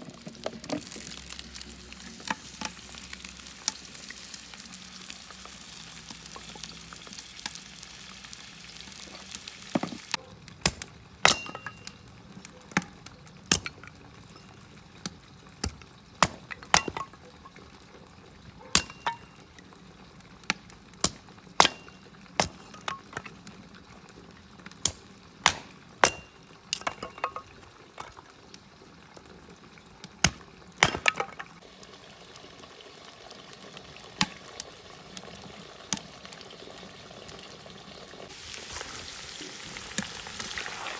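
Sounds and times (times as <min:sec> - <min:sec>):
oil sizzling: 0:00.0 - 0:40.9
metal utensils clinking on cookware: 0:11.2 - 0:12.0, 0:16.2 - 0:17.6, 0:18.6 - 0:19.5, 0:21.6 - 0:23.4, 0:25.5 - 0:28.3.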